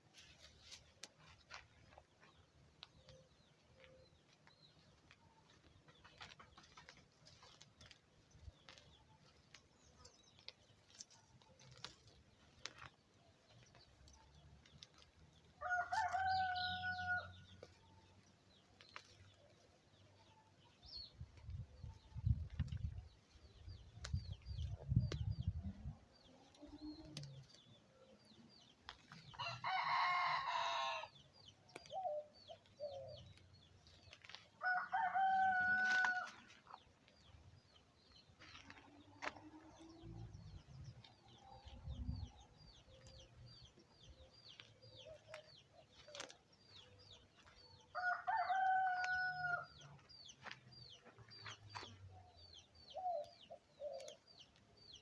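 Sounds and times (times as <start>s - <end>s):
rooster crowing: 15.6s - 17.3s, 29.4s - 31.1s, 34.6s - 36.3s, 48.0s - 49.6s.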